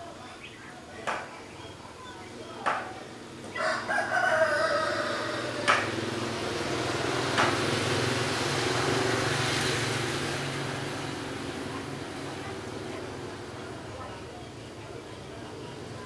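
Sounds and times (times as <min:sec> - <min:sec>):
rooster crowing: 0:03.5 - 0:06.0
passing vehicle: 0:04.2 - 0:13.7.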